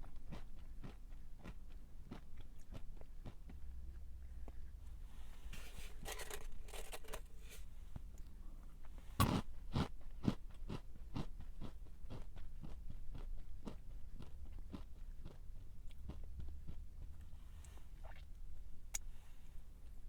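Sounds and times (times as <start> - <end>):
close-up chewing: 0.0 - 4.0, 9.2 - 17.3
person crunching a snack: 6.0 - 7.3.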